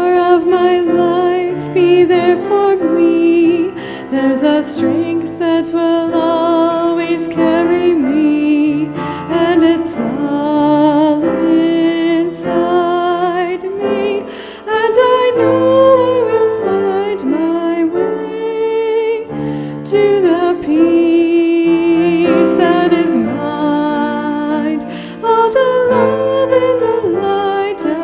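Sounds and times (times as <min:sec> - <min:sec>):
piano accompaniment: 0:00.0 - 0:28.0
woman singing slow song: 0:00.0 - 0:28.0.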